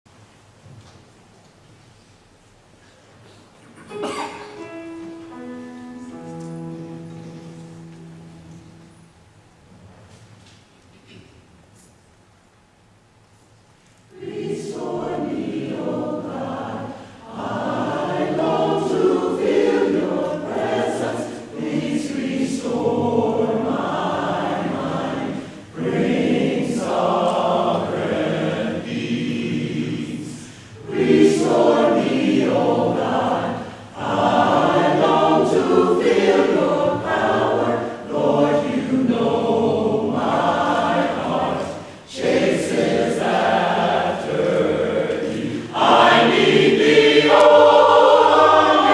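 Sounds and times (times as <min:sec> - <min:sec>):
mixed choir singing: 0:14.1 - 0:48.9.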